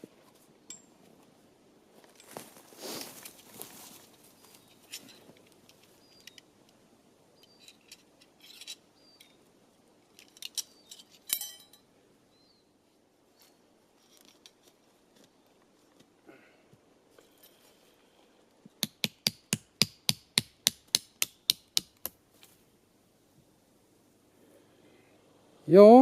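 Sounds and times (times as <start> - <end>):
tent gear clicks and clinks: 2.0 - 6.8, 7.4 - 9.4, 10.0 - 11.9.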